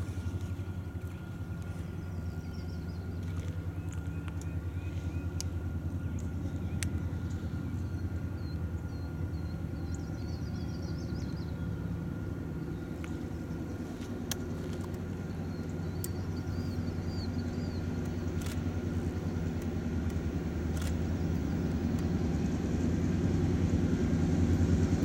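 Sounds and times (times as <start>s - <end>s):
diesel locomotive rumbling: 0.0s - 25.0s
sharp clicks: 18.0s - 18.7s, 19.4s - 21.1s.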